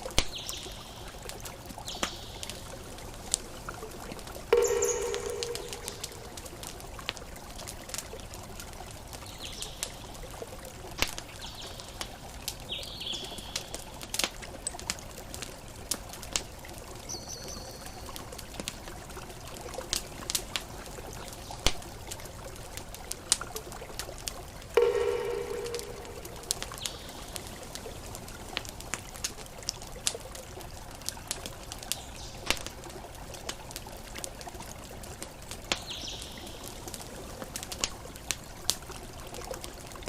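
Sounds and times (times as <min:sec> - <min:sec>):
campfire crackling and popping: 0:00.0 - 0:40.0
high chirps: 0:04.5 - 0:06.6, 0:24.8 - 0:27.5
loud ringing tone: 0:04.6 - 0:06.4, 0:24.8 - 0:26.9.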